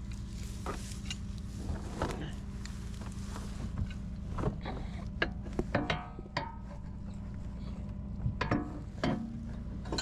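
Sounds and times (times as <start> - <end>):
steady low hum: 0.0 - 10.0
metallic clinks and knocks: 8.3 - 10.0.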